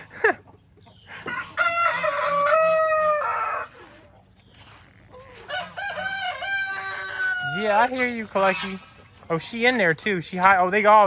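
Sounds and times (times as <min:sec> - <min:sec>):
rooster crowing: 0:01.1 - 0:04.0, 0:05.1 - 0:08.3.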